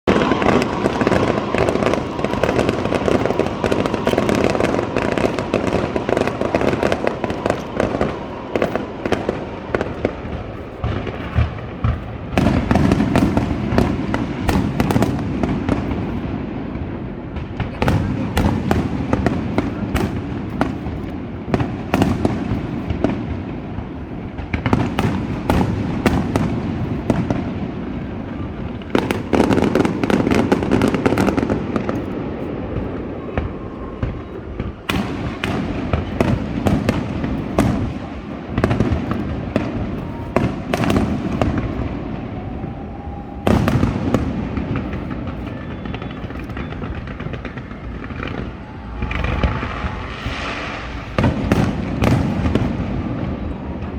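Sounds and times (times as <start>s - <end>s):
fireworks crackling and popping: 0.0s - 53.9s.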